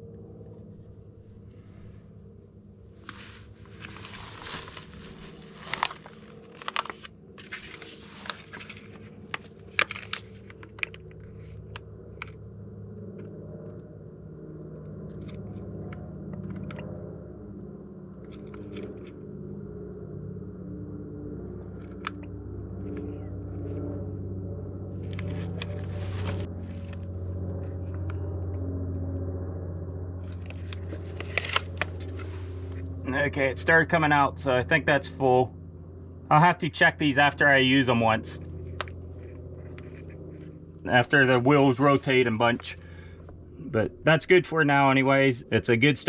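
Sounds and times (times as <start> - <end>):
low mechanical hum: 0.0 - 46.0
plastic containers crinkling: 3.7 - 11.0.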